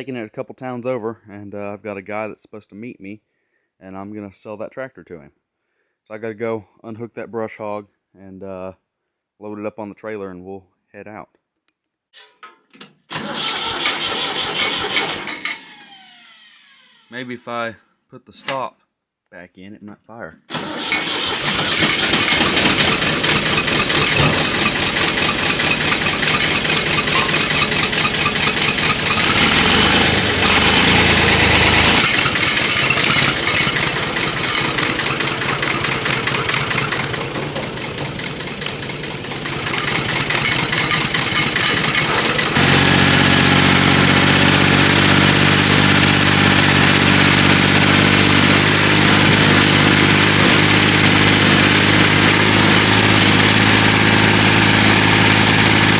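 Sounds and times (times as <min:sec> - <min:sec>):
tractor engine clattering: 0:13.1 - 0:15.8, 0:20.5 - 0:55.9.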